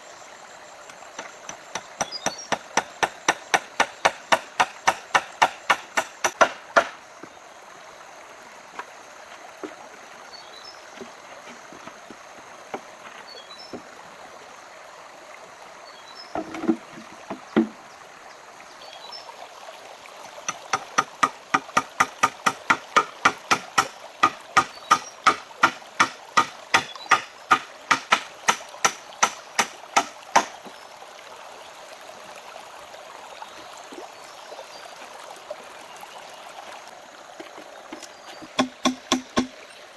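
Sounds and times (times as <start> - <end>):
hand tool striking wood: 1.2 - 7.0, 16.4 - 17.8, 20.5 - 30.7, 37.9 - 39.6.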